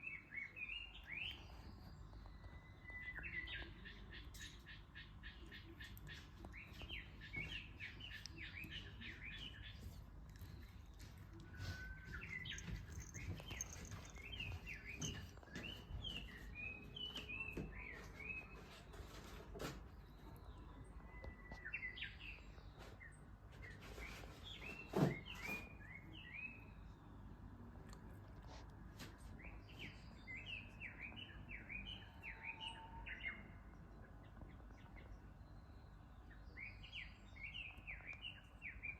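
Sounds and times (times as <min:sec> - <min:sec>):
low background hum: 0:00.0 - 0:23.7
songbirds twittering: 0:00.0 - 0:27.9, 0:28.7 - 0:38.9
small birds chirping: 0:00.0 - 0:38.9.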